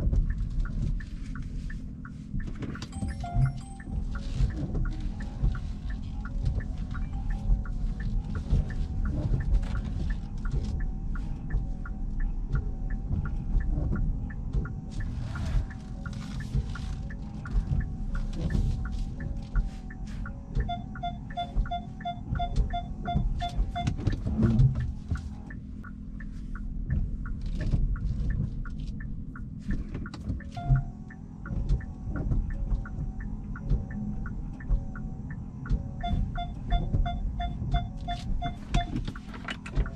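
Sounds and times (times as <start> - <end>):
car cabin rumble while driving: 0.0 - 39.9
rapid electronic beeping: 2.8 - 8.8, 17.7 - 24.9, 30.4 - 31.2, 36.0 - 39.9.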